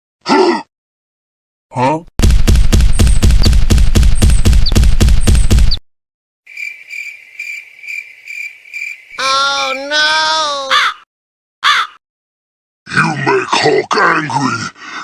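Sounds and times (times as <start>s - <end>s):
loud rapid pulsing: 2.2s - 5.8s
cricket chirping: 6.5s - 10.0s.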